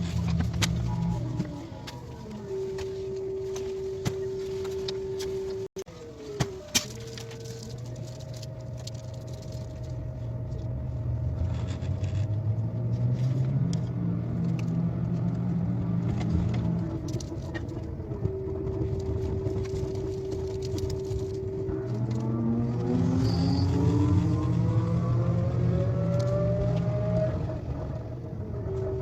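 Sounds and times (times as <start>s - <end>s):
train running noise and rumble: 0.0s - 5.6s, 6.5s - 29.0s
whining tones: 0.0s - 29.0s.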